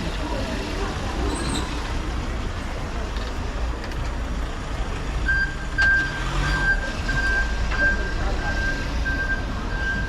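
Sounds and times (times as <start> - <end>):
beeping tone: 5.3 - 10.0.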